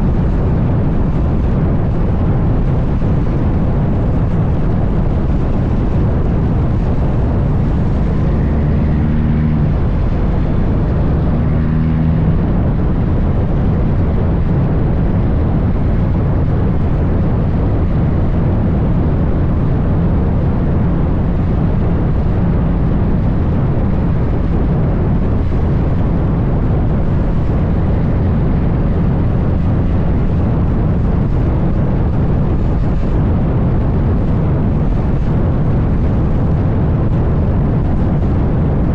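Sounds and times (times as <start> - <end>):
diesel truck engine rumble: 0.0 - 38.9.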